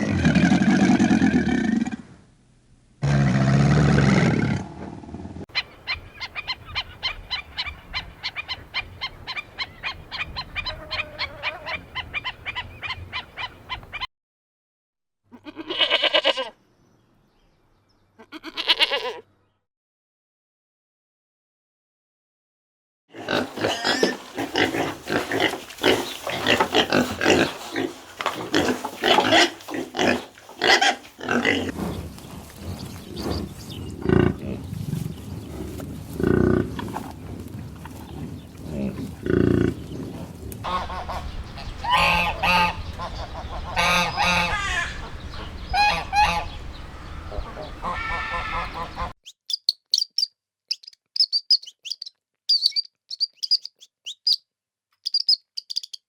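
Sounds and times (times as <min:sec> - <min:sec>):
farm animals honking: 0:07.6 - 0:13.8, 0:23.2 - 0:32.0, 0:40.6 - 0:49.2.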